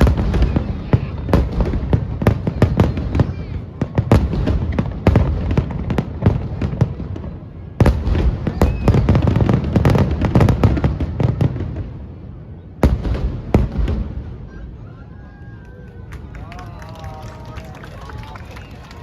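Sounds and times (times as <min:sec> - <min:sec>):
fireworks bangs and crackles: 0:00.0 - 0:14.8.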